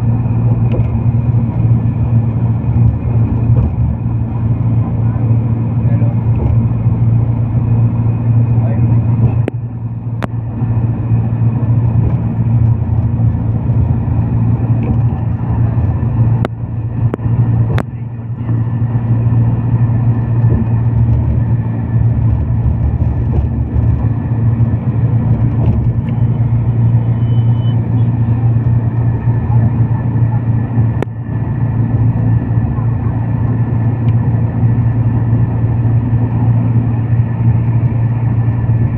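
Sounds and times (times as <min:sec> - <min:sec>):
road vehicle rumble: 0:00.0 - 0:38.9.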